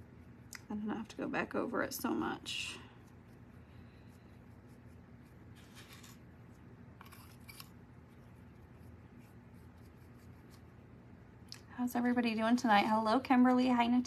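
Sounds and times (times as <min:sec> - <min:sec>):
low electrical hum: 0:00.0 - 0:14.0
paintbrush scratching: 0:02.0 - 0:10.8.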